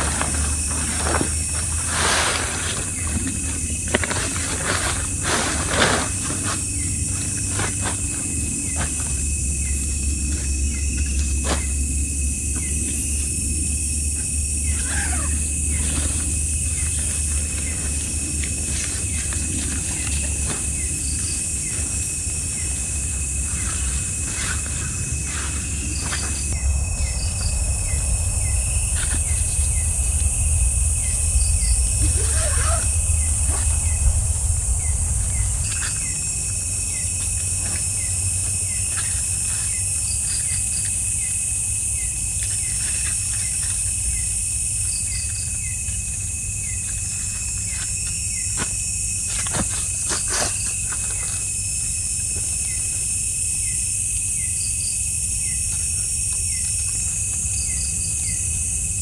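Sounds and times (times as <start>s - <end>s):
crickets chirping: 0.0s - 59.0s
insects shrill drone: 0.0s - 59.0s
low rumble: 22.4s - 39.3s.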